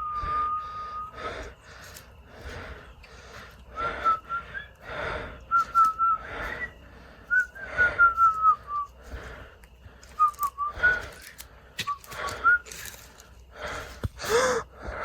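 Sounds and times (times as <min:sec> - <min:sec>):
person whistling: 0:00.0 - 0:01.2, 0:03.8 - 0:04.8, 0:05.5 - 0:08.9, 0:10.2 - 0:11.2, 0:11.8 - 0:12.8
breathy gasps: 0:13.5 - 0:15.0.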